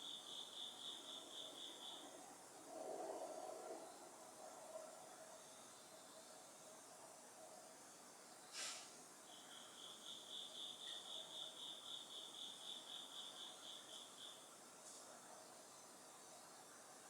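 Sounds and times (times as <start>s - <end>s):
insect chirping: 0.0s - 3.1s, 9.2s - 14.6s.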